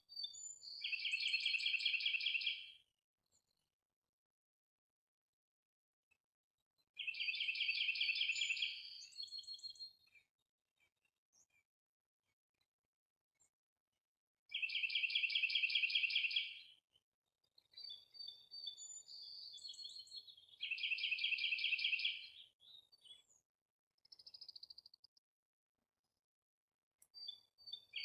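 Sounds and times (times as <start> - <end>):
songbird twittering and whistles: 0.0 - 2.8, 7.0 - 10.3, 14.5 - 16.8, 17.5 - 23.4, 27.0 - 28.0.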